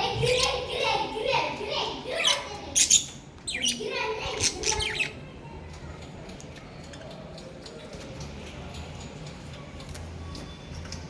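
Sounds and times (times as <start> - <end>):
parrots squawking and chirping: 2.1 - 5.3.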